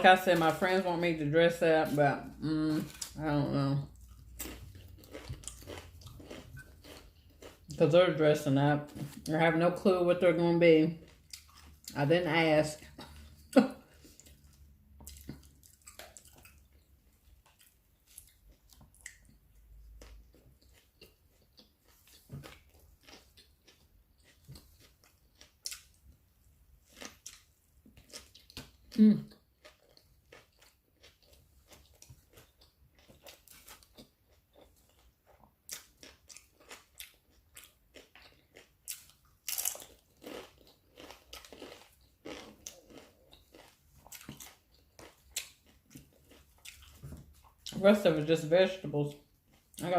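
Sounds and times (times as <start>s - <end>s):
person chewing food: 1.8s - 7.9s, 11.0s - 12.0s, 12.8s - 47.8s, 49.1s - 49.9s
food crunches: 3.9s - 7.8s, 14.2s - 26.0s, 26.8s - 29.0s, 35.7s - 47.7s.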